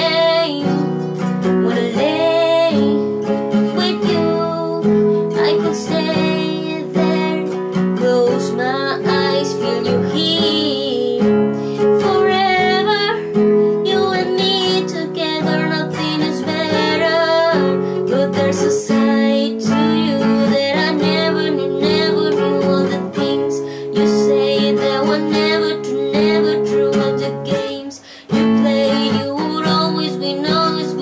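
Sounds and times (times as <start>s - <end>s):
strummed acoustic guitar: 0.0s - 31.0s
woman singing a pop ballad: 0.0s - 31.0s.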